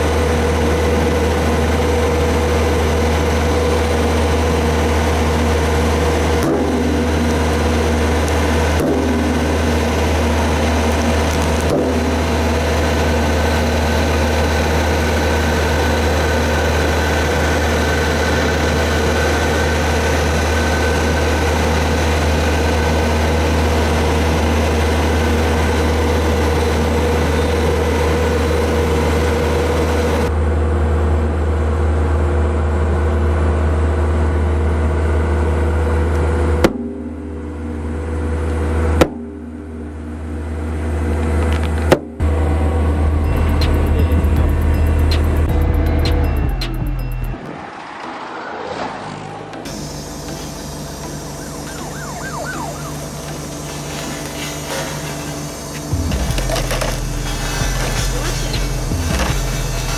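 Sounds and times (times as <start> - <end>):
road roller diesel engine droning: 0.0 - 59.9.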